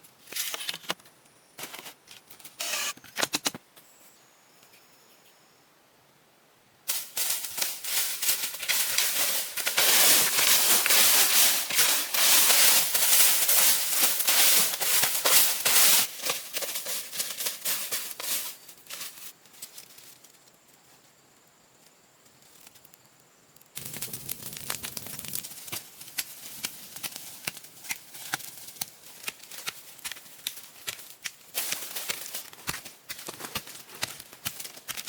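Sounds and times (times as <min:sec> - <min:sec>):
crackling and snapping: 0:06.9 - 0:20.0, 0:23.6 - 0:35.0.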